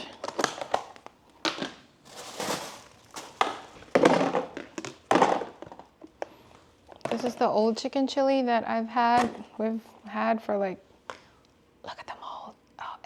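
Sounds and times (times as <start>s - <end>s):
plastic crinkling and rustling: 0.0s - 6.2s.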